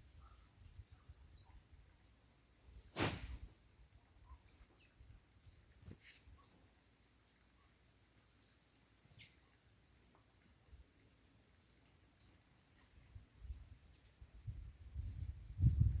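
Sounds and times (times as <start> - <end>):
bird chirps: 4.4 - 6.0, 12.2 - 13.0.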